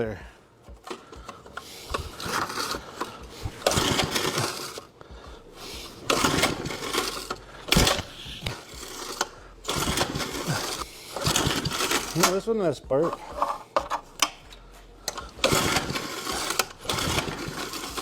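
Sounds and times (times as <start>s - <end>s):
recoil starter rope whirring: 0.7s - 13.4s, 14.1s - 18.0s
small engine turning over: 0.8s - 4.9s, 5.6s - 12.5s, 15.0s - 18.0s.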